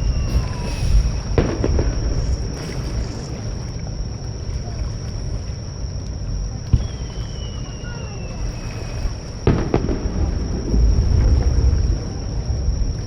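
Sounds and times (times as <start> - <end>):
fireworks bursting: 0.0 - 3.5, 6.7 - 12.2
surf: 0.0 - 13.0
wind: 0.0 - 13.0.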